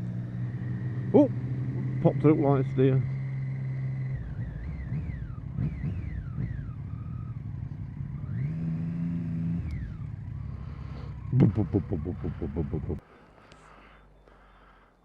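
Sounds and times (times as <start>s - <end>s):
motorcycle engine: 0.0s - 13.0s
road noise: 0.0s - 15.0s.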